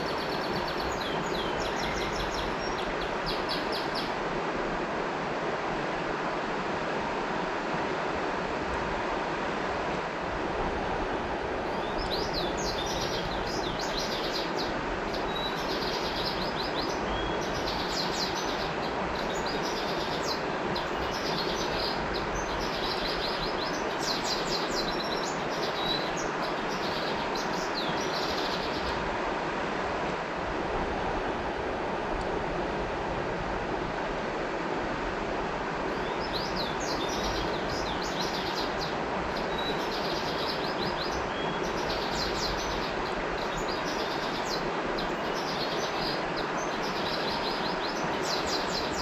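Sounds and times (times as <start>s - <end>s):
bird chirping: 0.0s - 4.1s, 11.7s - 28.9s
river water flowing: 0.0s - 49.0s.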